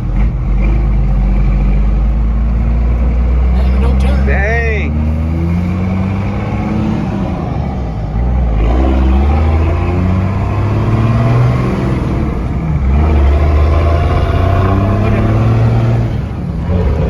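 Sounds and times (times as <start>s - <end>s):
diesel engine accelerating: 4.3s - 17.0s.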